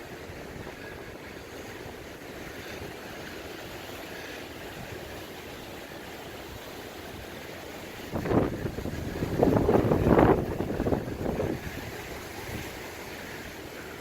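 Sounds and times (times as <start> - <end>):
rushing wind: 0.0 - 14.0
wind gust buffeting microphone: 8.0 - 13.0.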